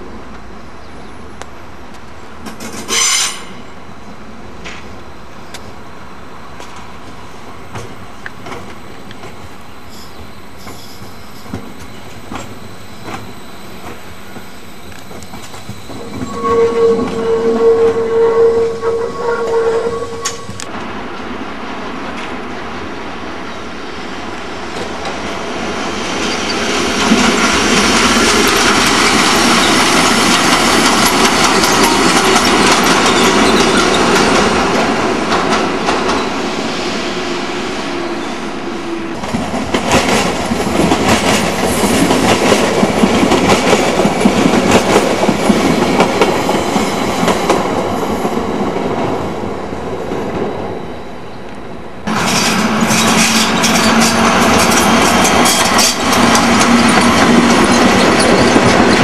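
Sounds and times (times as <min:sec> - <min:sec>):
train wheels clacking over rail joints: 0:02.4 - 0:03.6, 0:26.5 - 0:36.3, 0:39.2 - 0:47.8, 0:52.1 - 0:59.0.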